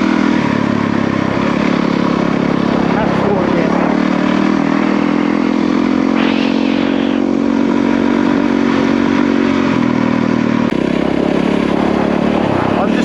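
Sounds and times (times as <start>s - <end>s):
motorcycle engine running: 0.0s - 13.0s
brief rushing noise: 6.1s - 7.4s.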